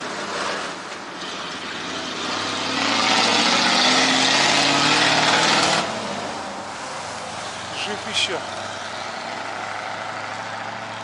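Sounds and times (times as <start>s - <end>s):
vehicle passing close: 1.6s - 11.0s.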